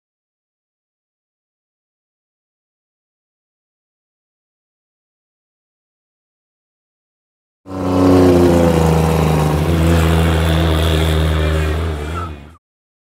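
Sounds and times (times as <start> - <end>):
car engine running loud: 7.7 - 12.6.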